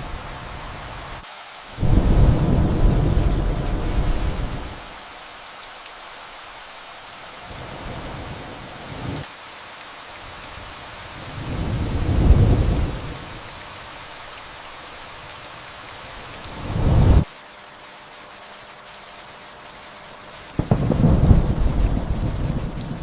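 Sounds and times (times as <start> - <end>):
steady rain: 0.0 - 23.0
thunder rumbling: 1.8 - 4.9, 11.2 - 13.3, 16.6 - 17.3, 20.6 - 23.0.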